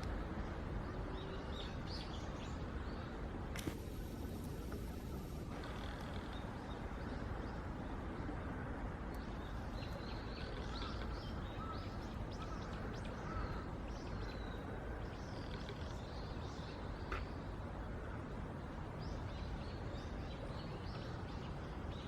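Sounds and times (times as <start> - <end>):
small birds chirping: 9.2 - 17.4.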